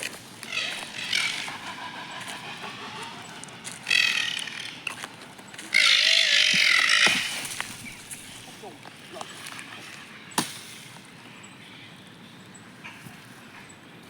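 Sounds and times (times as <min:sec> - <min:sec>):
animal squealing calls: 0:00.0 - 0:10.4.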